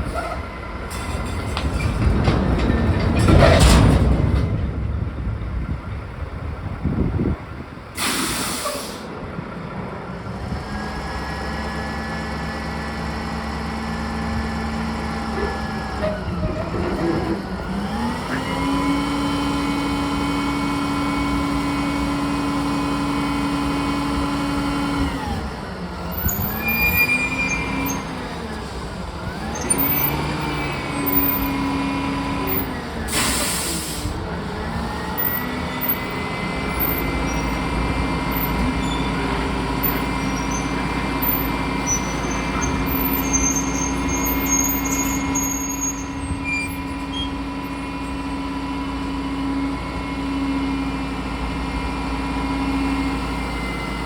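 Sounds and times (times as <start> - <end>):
air hiss bursts: 8.0 - 9.1.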